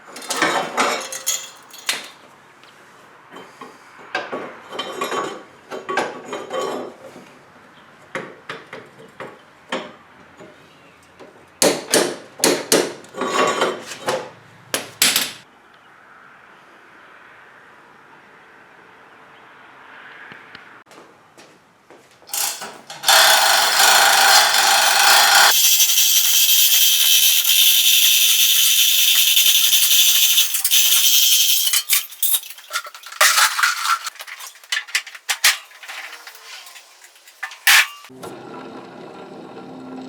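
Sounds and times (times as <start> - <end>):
power tool running: 22.3 - 31.6
metallic clicks and rattles: 25.5 - 38.1.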